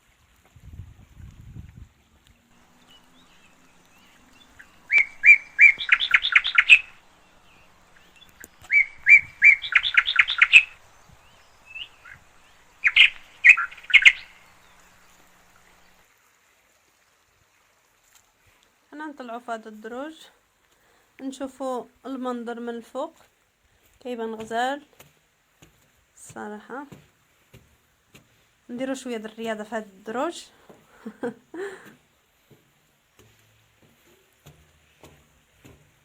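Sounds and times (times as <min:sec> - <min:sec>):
songbird trilling: 0:02.6 - 0:16.0.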